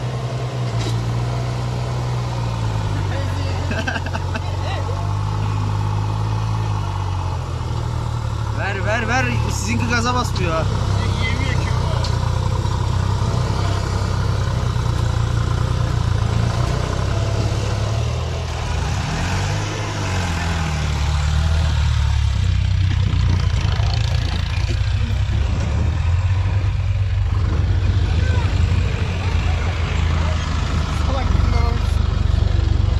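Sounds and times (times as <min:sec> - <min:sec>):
tractor diesel engine under load: 0:00.0 - 0:32.9.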